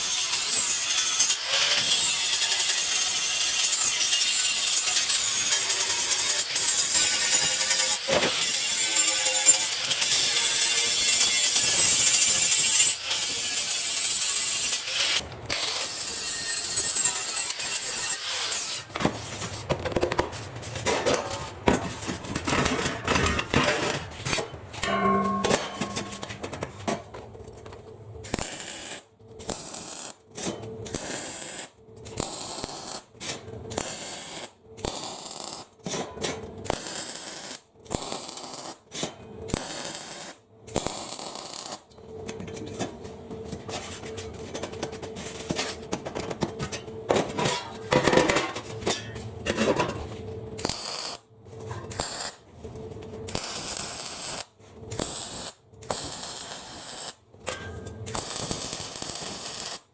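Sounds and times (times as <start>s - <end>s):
arc welding crackle and hiss: 0.0s - 19.7s, 28.2s - 36.0s, 36.6s - 42.0s, 50.6s - 51.3s, 51.9s - 52.4s, 53.2s - 57.2s, 58.1s - 59.9s.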